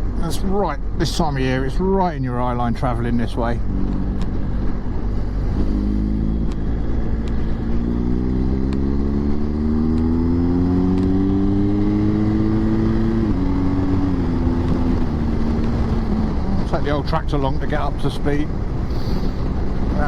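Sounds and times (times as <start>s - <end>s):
motorcycle engine accelerating: 3.0s - 20.0s
wind rush: 3.5s - 9.8s, 11.2s - 20.0s.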